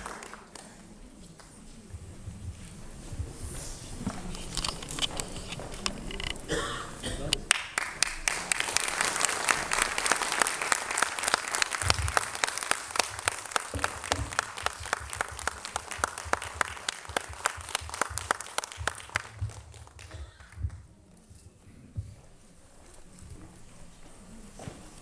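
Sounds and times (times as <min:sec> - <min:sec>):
crowd applauding: 0:00.0 - 0:00.9, 0:07.5 - 0:20.7.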